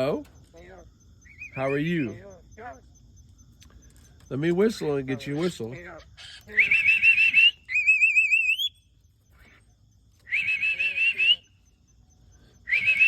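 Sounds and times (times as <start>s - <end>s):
mynah bird whistling: 1.1s - 2.2s, 5.1s - 13.0s
person whistling a trill: 10.2s - 11.5s, 12.7s - 13.0s.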